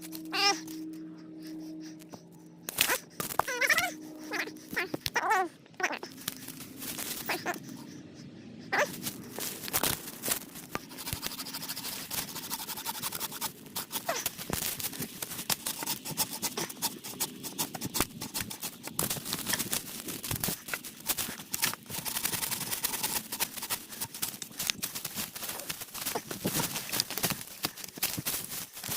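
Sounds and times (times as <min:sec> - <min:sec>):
hand tool rasping wood: 0:10.4 - 0:28.9.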